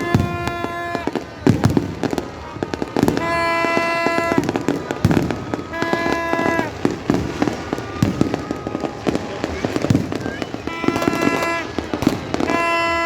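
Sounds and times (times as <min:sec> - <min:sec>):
fireworks bangs and crackling: 0:00.0 - 0:13.0
horn-like tone: 0:05.7 - 0:06.8, 0:10.6 - 0:11.8.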